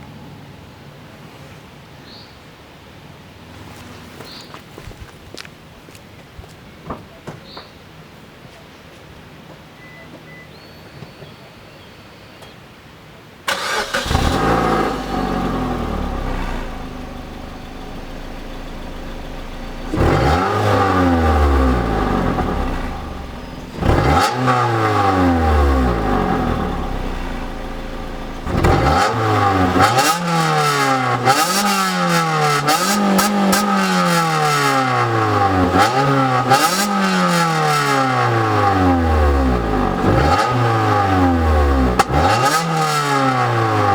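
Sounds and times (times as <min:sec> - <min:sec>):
car engine idling and revving: 0:13.5 - 0:43.9
car engine starting: 0:13.5 - 0:43.9.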